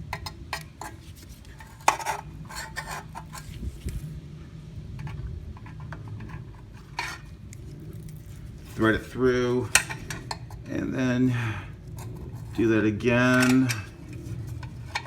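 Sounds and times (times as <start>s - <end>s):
steady low hum: 0.0s - 15.0s
pliers and cord clicking and scraping: 5.0s - 10.7s, 11.9s - 15.0s.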